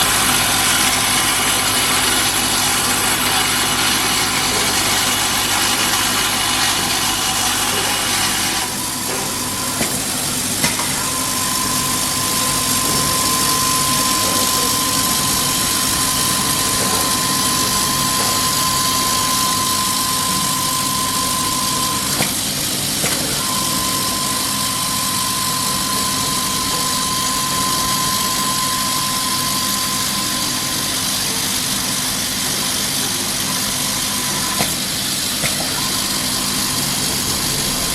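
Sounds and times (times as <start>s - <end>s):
high steady whine: 0.0s - 37.9s
machine hum and rush: 33.4s - 37.9s.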